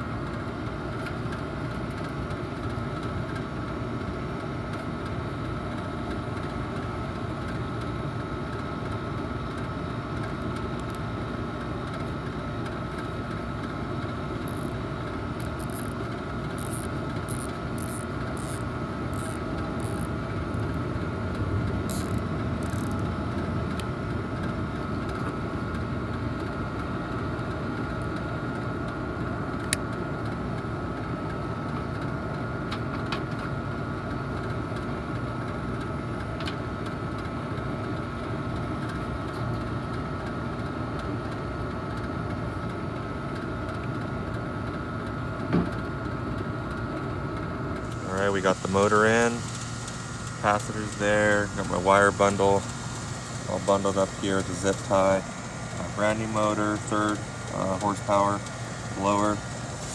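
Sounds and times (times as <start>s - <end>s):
air-conditioning unit droning: 0.0s - 59.9s
clicks and rasps from wiring work: 14.4s - 14.8s, 15.4s - 20.8s, 21.9s - 23.1s, 47.8s - 59.9s.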